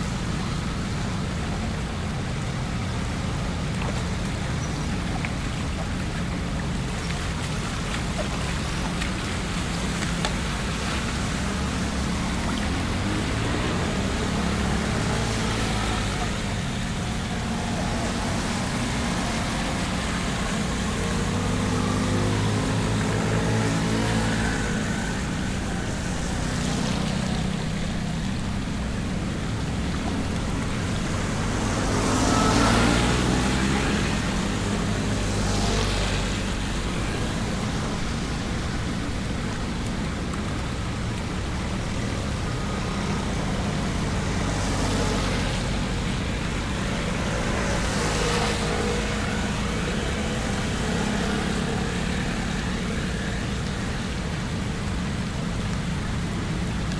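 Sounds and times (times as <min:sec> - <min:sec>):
vehicle engine running: 0:00.0 - 0:56.9
vehicle passing rush: 0:00.0 - 0:56.9.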